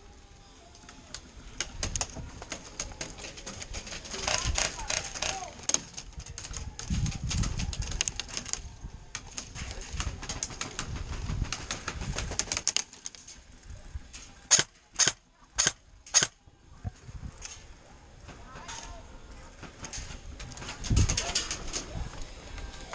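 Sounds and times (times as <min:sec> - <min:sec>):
airsoft gunfire: 0:14.5 - 0:16.4.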